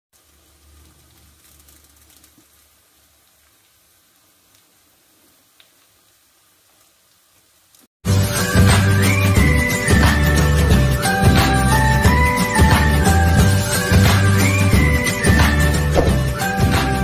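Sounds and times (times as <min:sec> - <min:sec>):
omelette sizzling in a pan: 0:00.2 - 0:07.9.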